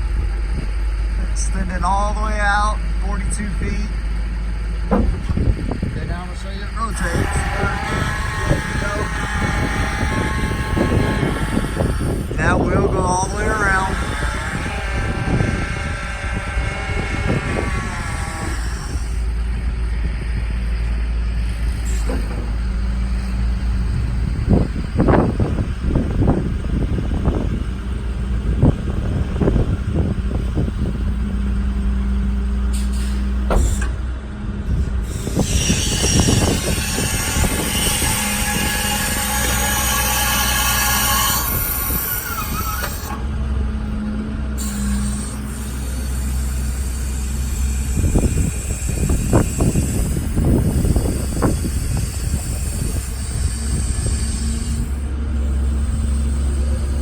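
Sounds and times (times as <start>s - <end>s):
diesel engine idling: 0.0s - 57.0s
steady hum: 0.6s - 34.1s, 34.7s - 57.0s
sharp metallic knocks: 4.8s - 5.9s
sharp clunk: 4.9s - 5.8s, 33.4s - 34.0s.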